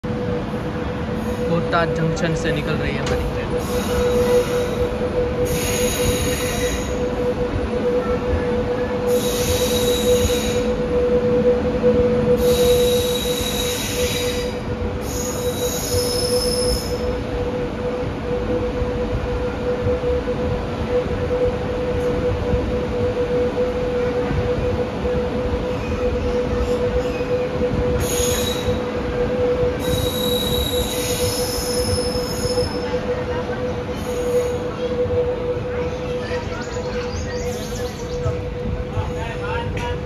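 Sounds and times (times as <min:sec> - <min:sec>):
steady train whine: 0:00.0 - 0:40.0
high wheel squeal: 0:03.1 - 0:07.2, 0:09.1 - 0:10.9, 0:12.3 - 0:17.2, 0:25.6 - 0:29.0, 0:29.7 - 0:33.3, 0:35.7 - 0:38.5.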